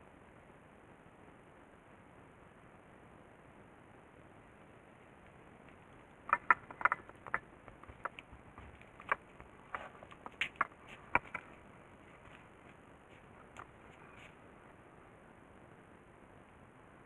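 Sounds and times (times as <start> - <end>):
faint steady hiss: 0.0 - 17.0
light clicks and taps: 5.2 - 14.4.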